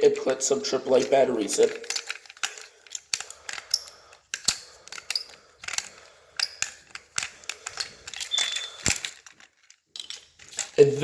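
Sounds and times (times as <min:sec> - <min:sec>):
screwdriver clicks and scrapes: 0:00.9 - 0:10.8
brief squeak: 0:08.3 - 0:08.8.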